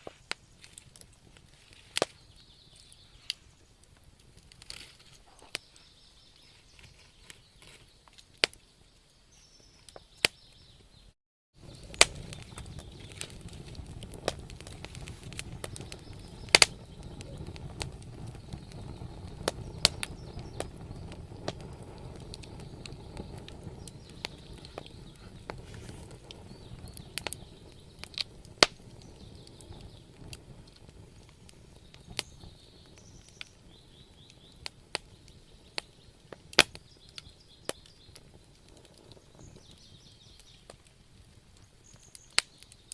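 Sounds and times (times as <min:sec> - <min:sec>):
low rumble of flame: 0:00.0 - 0:10.9, 0:11.6 - 0:42.9
wood fire crackling and popping: 0:00.0 - 0:42.9.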